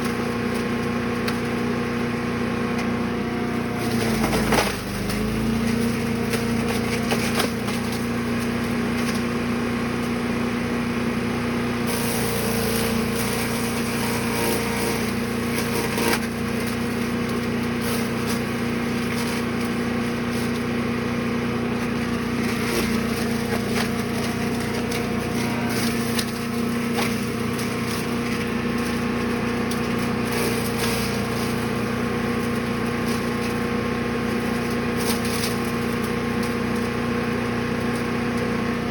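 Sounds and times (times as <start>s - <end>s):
wood chipper engine running: 0.0s - 38.9s
wood cracking and snapping: 3.8s - 9.3s, 21.9s - 37.0s.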